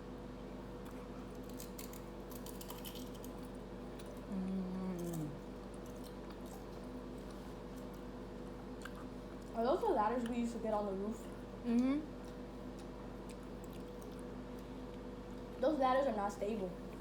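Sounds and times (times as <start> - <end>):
steady low hum: 0.0 - 17.0
crunchy chewing: 0.6 - 10.4, 11.3 - 15.6
person humming mm: 4.3 - 5.4, 11.6 - 12.1.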